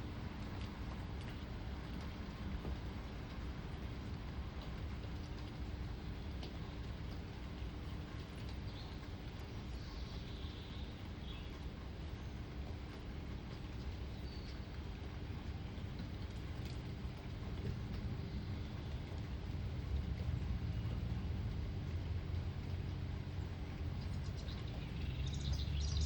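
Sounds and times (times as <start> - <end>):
low rumble: 13.9 - 26.0.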